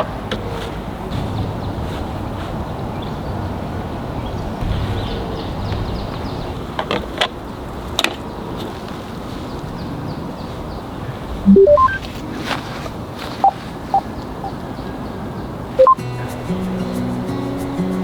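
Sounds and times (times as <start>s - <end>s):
rising electronic beeps: 11.4s - 12.0s, 15.8s - 16.0s.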